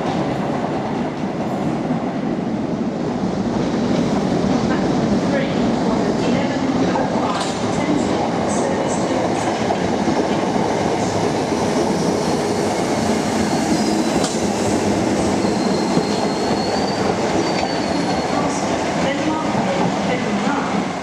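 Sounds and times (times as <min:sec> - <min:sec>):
train wheels rumbling on rail: 0:00.0 - 0:21.0
high wheel squeal: 0:12.0 - 0:14.3, 0:15.2 - 0:18.5.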